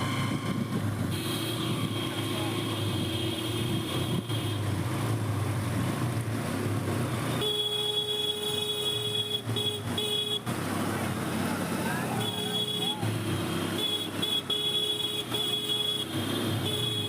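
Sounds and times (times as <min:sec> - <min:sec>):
vehicle horn blasts: 0:01.1 - 0:04.7, 0:07.4 - 0:10.5, 0:12.2 - 0:13.1, 0:13.7 - 0:17.0.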